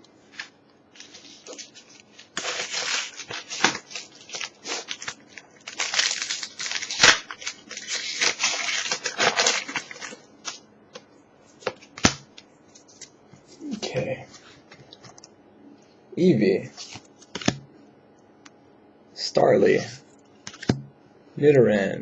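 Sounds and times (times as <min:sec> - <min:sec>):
foil wrapper crinkling and tearing: 0:00.3 - 0:10.6.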